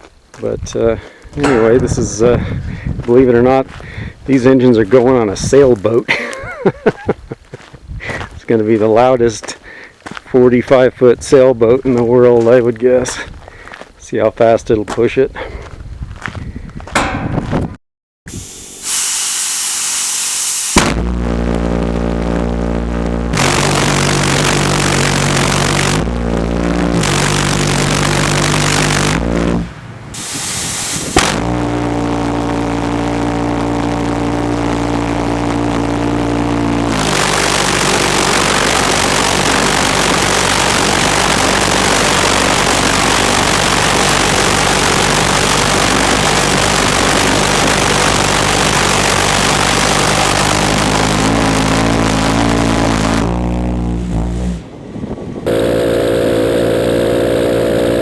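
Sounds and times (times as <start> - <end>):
pulsejet engine roaring: 20.8 - 58.0.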